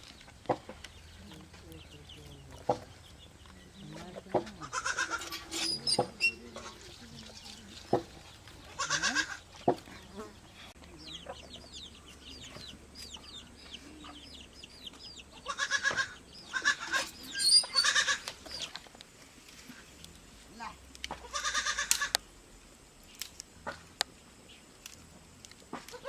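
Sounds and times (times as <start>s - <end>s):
small birds chirping: 0.0s - 22.3s
farm animals calling: 0.6s - 18.7s, 21.2s - 22.2s.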